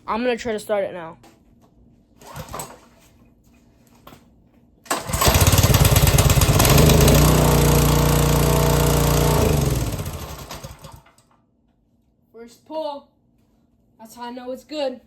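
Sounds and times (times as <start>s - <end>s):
small engine pull-started and running: 2.2s - 2.9s, 4.9s - 11.3s.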